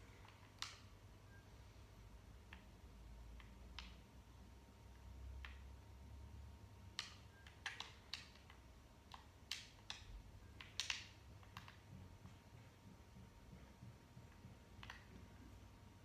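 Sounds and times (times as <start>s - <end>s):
low steady hum: 0.0s - 16.0s
faint clicks and ticks: 2.4s - 4.1s, 6.9s - 15.6s.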